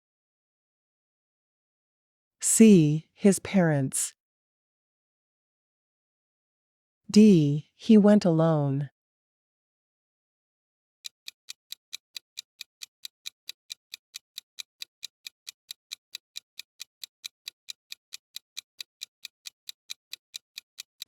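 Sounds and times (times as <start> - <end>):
clock ticking: 11.0 - 21.0.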